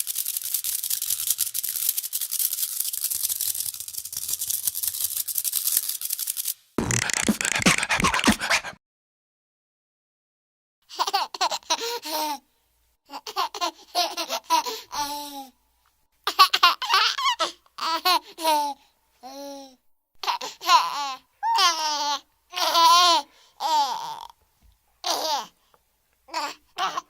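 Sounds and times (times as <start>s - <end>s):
baby laughing and babbling: 10.9s - 12.4s, 13.1s - 15.5s, 16.3s - 24.4s, 25.0s - 25.6s, 26.3s - 27.0s.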